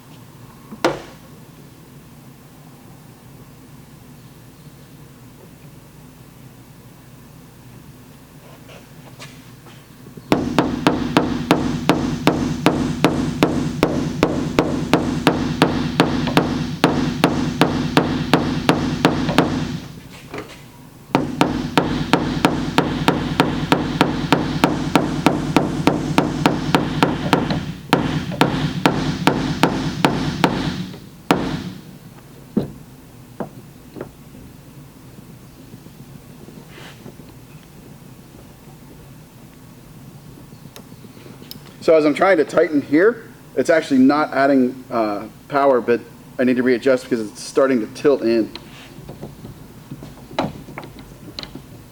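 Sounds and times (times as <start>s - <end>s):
hammer tapping steel panel: 10.3s - 20.0s, 21.2s - 31.8s.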